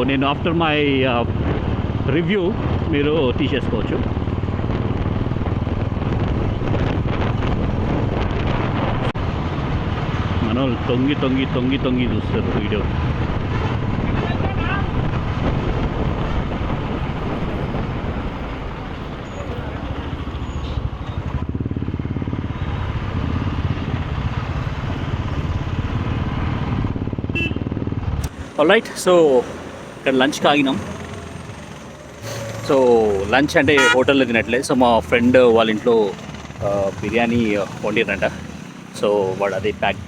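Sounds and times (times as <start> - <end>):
motorcycle engine drone: 0.0 - 40.0
wind buffeting microphone: 0.6 - 10.4, 11.8 - 28.2.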